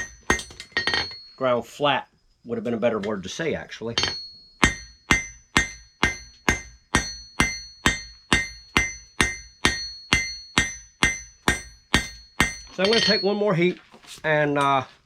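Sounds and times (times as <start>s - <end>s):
hammer striking steel on anvil: 0.0s - 1.3s, 4.0s - 13.5s.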